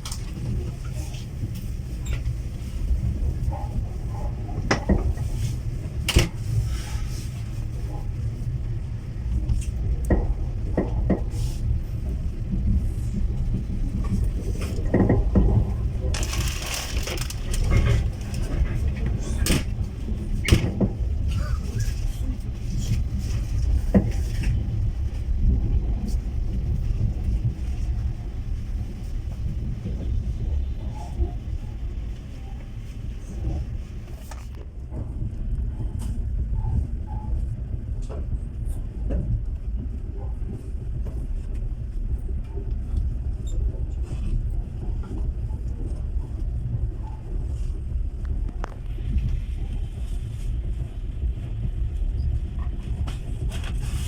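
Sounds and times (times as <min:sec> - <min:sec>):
train carriage rumbling on track: 0:00.0 - 0:54.0
faint clicks and rattles: 0:14.0 - 0:20.9.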